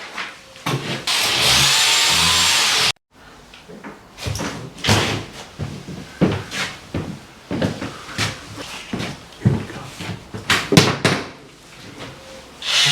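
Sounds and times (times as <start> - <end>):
power tool cutting wall: 1.0 - 3.0, 12.6 - 12.9.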